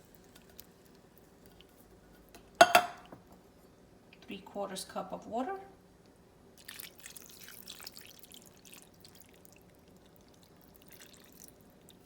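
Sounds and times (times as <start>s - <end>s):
water pouring into a pot: 6.6s - 12.0s.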